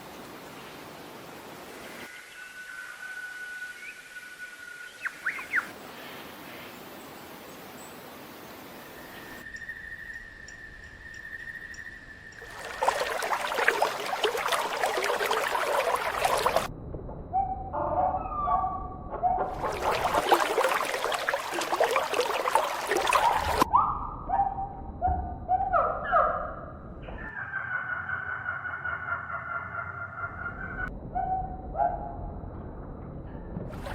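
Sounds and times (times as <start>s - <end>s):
dense crackling splashing noise: 12.4s - 16.7s, 19.5s - 23.7s.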